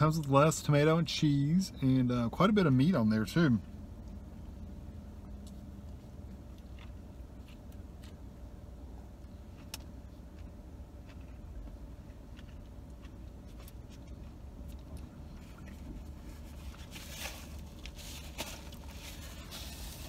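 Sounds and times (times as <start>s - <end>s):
low rumble inside car: 0.0s - 20.0s
man chewing: 5.2s - 20.0s.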